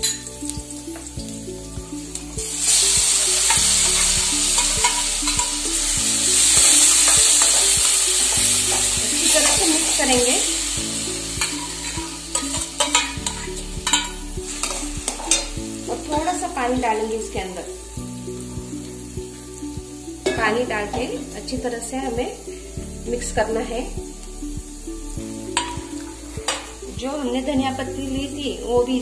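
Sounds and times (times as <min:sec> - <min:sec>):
mixture sizzling in hot oil: 0:00.0 - 0:29.0
metal spoon scraping pan: 0:03.4 - 0:05.6, 0:11.4 - 0:15.6.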